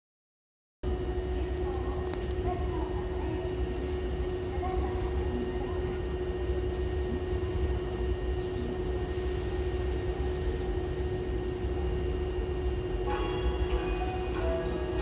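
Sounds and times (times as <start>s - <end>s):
constant steady tone: 0.9s - 15.0s
electric train humming: 0.9s - 15.0s
chiming bell-like melody: 13.0s - 15.0s.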